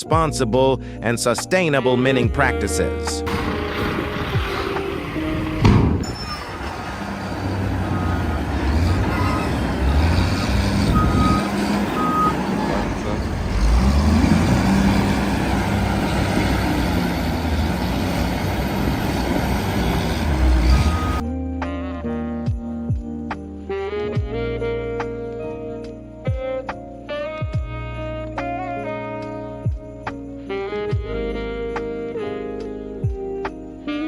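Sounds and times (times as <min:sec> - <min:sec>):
truck diesel engine revving: 0:03.2 - 0:21.2
sharp loud knock: 0:05.6 - 0:06.1
reversing alarm beeps: 0:07.3 - 0:09.6, 0:10.7 - 0:13.1, 0:19.9 - 0:21.2.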